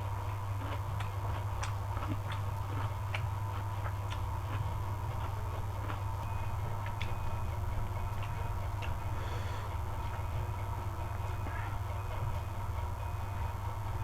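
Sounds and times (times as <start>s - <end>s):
steady low hum: 0.0s - 14.0s
chewing: 0.2s - 7.3s, 8.0s - 9.0s.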